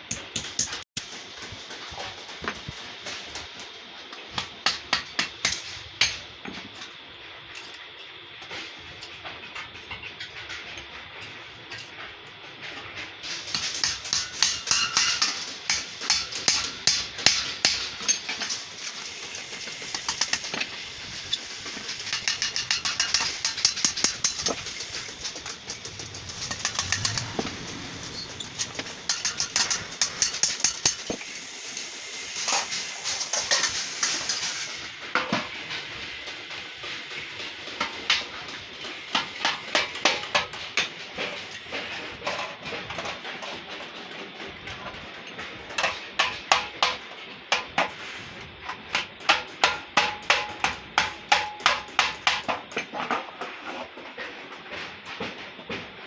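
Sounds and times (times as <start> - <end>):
hammer on sheet metal: 13.3 - 18.6, 22.1 - 31.1, 49.3 - 52.5.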